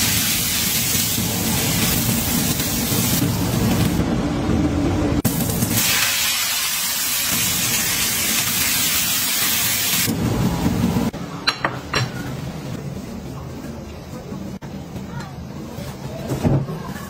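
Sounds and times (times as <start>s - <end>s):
greens sizzling in hot oil: 0.0s - 3.8s, 5.3s - 10.1s.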